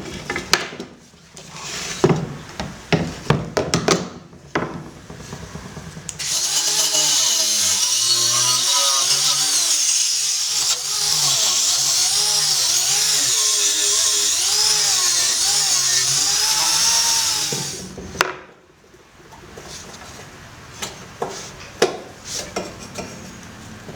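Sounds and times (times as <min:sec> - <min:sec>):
power tool motor running: 0:06.2 - 0:18.0.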